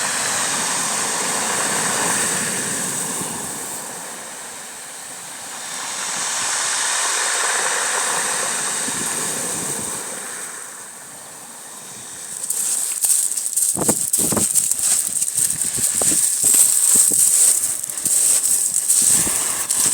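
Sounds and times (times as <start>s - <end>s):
choppy water splashing: 12.3s - 19.9s.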